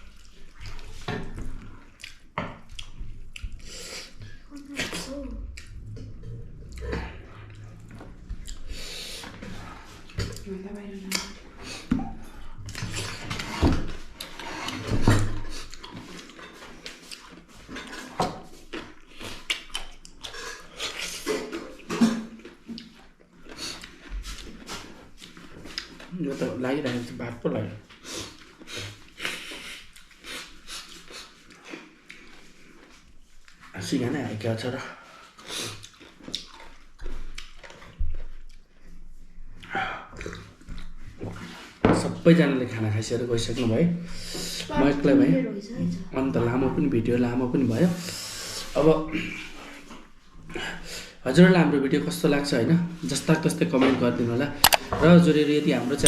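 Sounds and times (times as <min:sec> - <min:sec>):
wet chewing and mouth smacking: 0:00.0 - 0:13.2, 0:14.2 - 0:26.2, 0:27.8 - 0:33.7, 0:35.2 - 0:41.7, 0:54.6 - 0:54.9.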